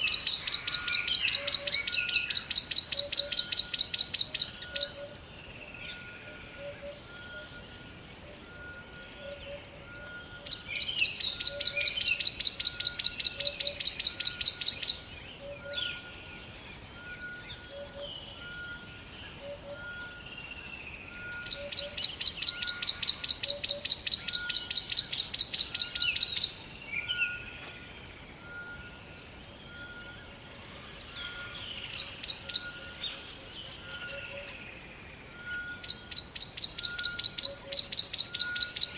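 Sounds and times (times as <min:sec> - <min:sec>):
forest birds calling: 0:00.0 - 0:38.9
loud rapid bird trill: 0:08.5 - 0:38.9.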